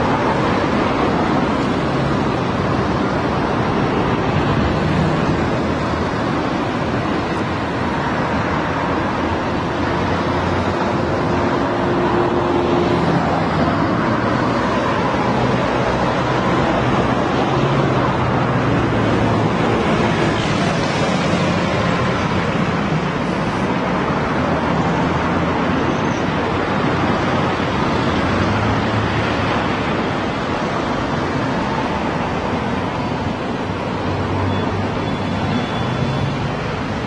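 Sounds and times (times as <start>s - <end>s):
cars and motorbikes passing: 0.0s - 37.0s.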